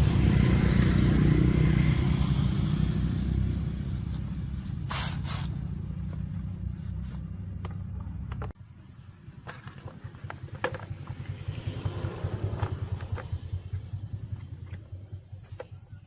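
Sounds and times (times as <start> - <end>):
small engine pulsing: 0.0 - 8.5, 9.5 - 16.0
brief scrape: 4.8 - 5.6.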